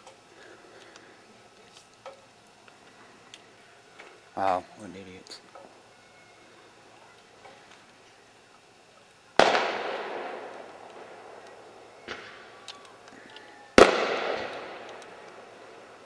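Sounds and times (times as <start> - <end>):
firework crack: 9.3 - 16.0
faint pops: 9.4 - 15.4
fireworks booming: 9.4 - 16.0.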